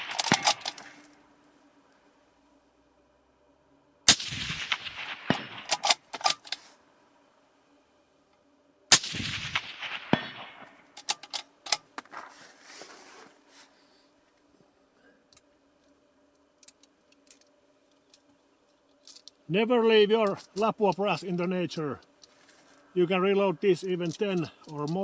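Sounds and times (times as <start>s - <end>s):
rifle shots with echo: 0.0s - 1.0s, 4.1s - 6.0s, 8.9s - 10.9s
rifle bolt clicking: 0.1s - 0.9s.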